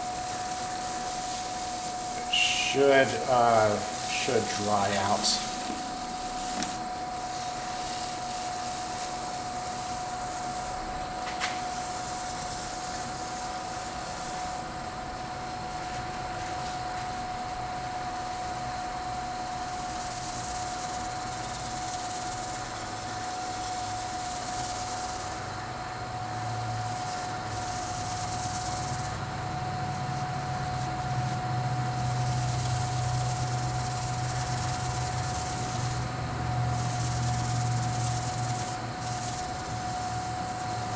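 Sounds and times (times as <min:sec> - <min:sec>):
wood lathe whining: 0:00.0 - 0:10.8, 0:26.3 - 0:40.9
cloth buffing hiss: 0:01.0 - 0:09.2.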